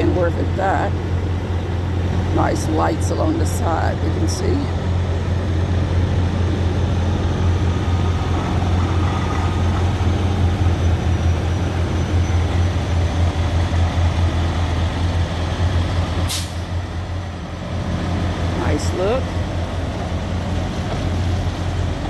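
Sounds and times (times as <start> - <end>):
diesel engine droning: 0.0 - 22.0
air brakes hissing: 16.2 - 16.8.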